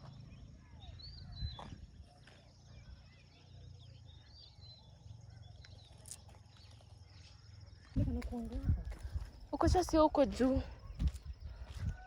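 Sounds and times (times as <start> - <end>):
small birds chirping: 0.0 - 12.0
low wind rumble: 7.6 - 12.0.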